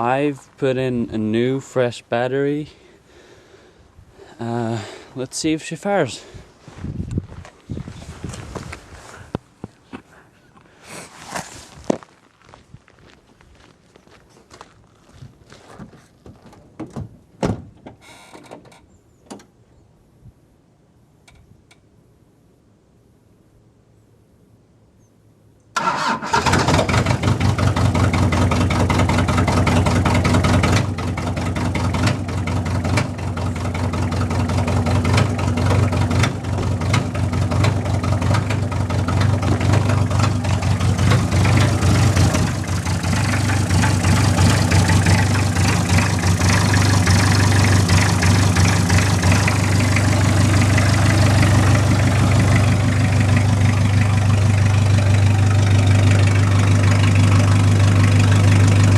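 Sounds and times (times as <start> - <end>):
diesel engine starting and idling: 25.8 - 58.9.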